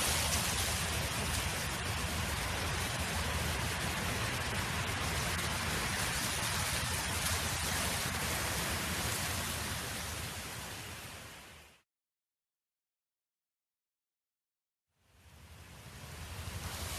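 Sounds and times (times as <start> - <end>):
wind noise: 0.0 - 11.7.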